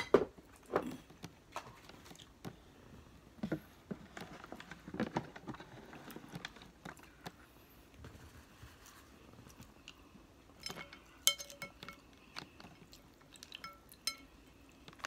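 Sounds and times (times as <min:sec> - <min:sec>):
person chewing and lip smacking: 0:12.2 - 0:14.0.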